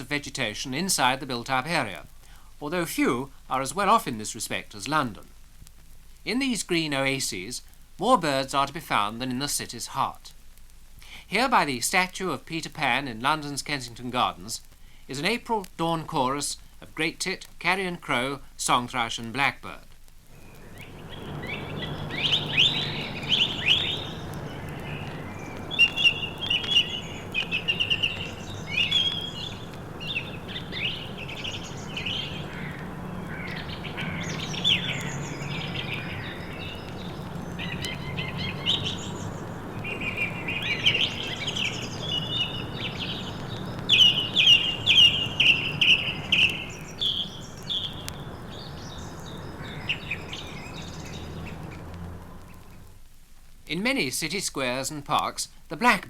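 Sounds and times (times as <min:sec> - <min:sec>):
steady low hum: 0:20.3 - 0:52.8
birds singing and calling: 0:20.4 - 0:52.9.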